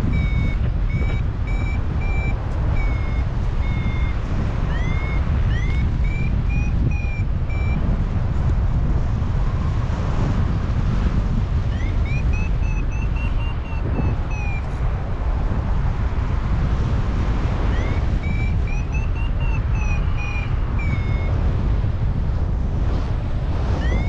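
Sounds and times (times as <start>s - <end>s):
variometer beeping in rising chirps: 0.0s - 7.8s, 11.7s - 14.8s, 17.7s - 21.4s, 23.8s - 24.0s
wind buffeting microphone: 0.0s - 24.0s.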